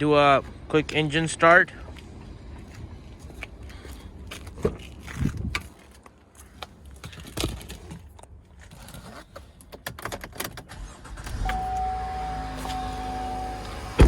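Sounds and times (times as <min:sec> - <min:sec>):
car engine starting and idling: 0:10.0 - 0:14.0
constant whine: 0:11.0 - 0:14.0.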